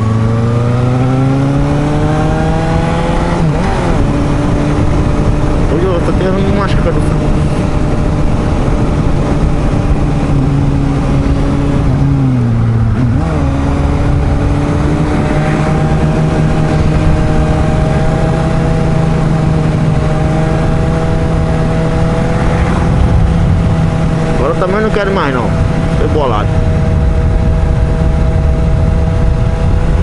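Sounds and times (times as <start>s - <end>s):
motorcycle engine running: 0.0s - 30.0s
wind rush: 0.0s - 30.0s.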